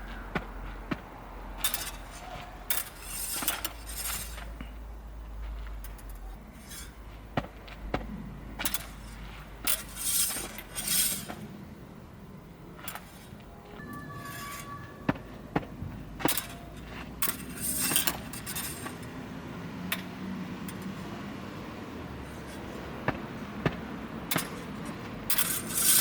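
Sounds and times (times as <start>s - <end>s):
fencing blades clinking: 1.6s - 4.6s, 16.2s - 19.1s.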